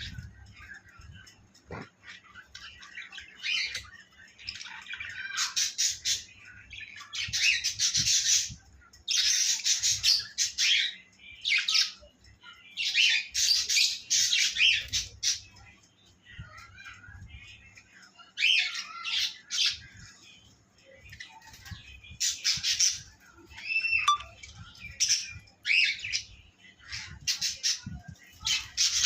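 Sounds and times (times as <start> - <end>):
birds calling harshly: 1.3 - 3.8.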